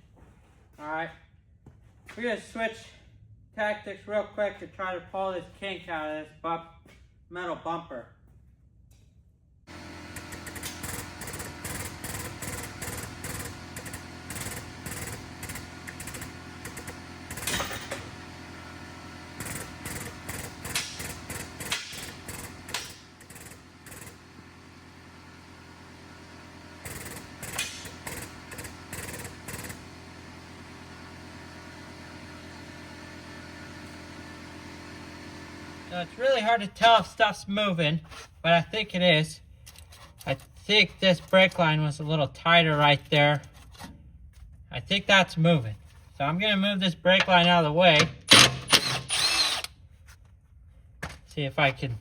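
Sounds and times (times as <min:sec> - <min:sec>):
machine humming: 0:09.7 - 0:37.0, 0:48.0 - 0:49.7
sharp metal knocks: 0:19.9 - 0:23.1.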